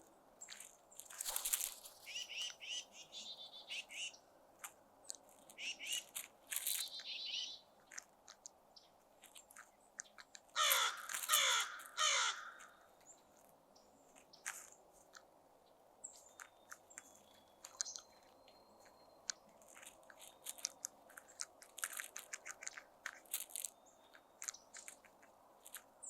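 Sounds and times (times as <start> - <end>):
high bird calls: 1.2 - 4.3, 5.5 - 8.0, 10.0 - 13.3
crows cawing: 10.6 - 12.9.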